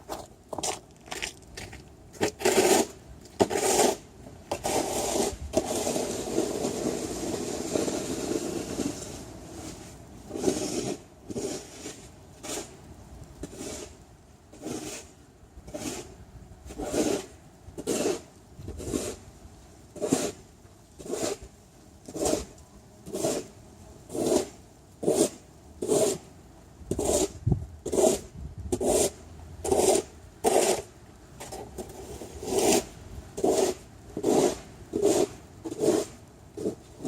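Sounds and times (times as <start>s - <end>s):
footsteps crunching through snow: 0.0s - 2.9s
scraping rush: 0.0s - 12.8s.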